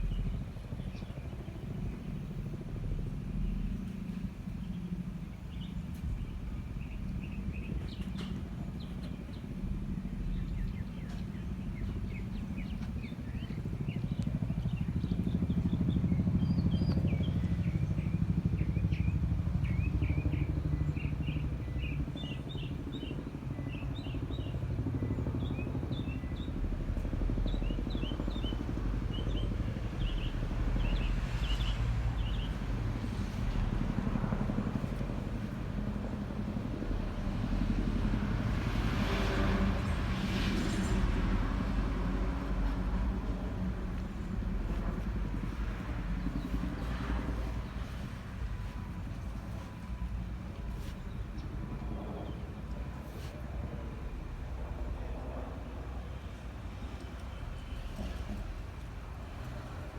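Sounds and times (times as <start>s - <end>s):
helicopter rotor rumble: 0.0s - 59.9s.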